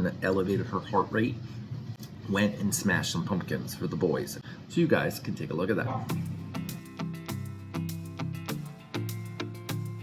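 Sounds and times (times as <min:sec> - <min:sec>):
strummed guitar music: 0:06.1 - 0:10.0.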